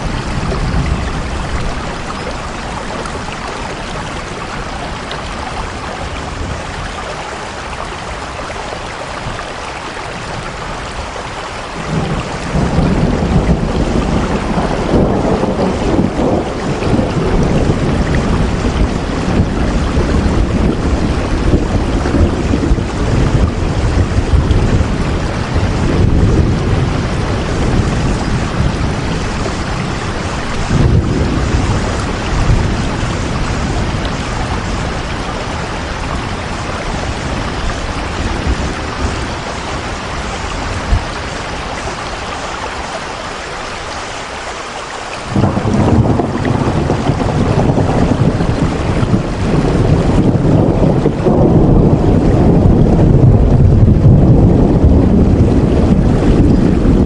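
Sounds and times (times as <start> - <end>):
heavy rain falling: 0.0 - 57.0
deep rumbling: 11.8 - 41.5, 45.3 - 57.0.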